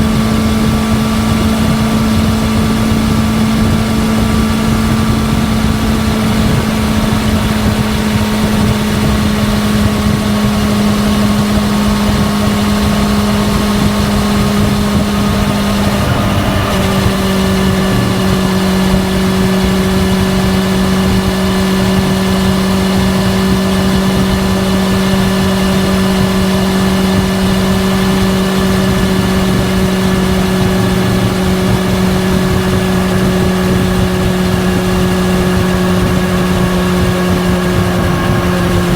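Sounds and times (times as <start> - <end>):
motorcycle exhaust running: 0.0 - 38.9.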